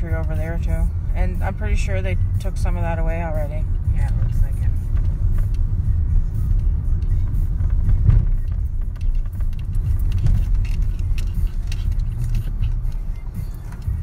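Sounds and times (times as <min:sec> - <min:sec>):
car engine and road rumble: 0:00.0 - 0:14.0
faint light ticks and rattles: 0:03.7 - 0:14.0.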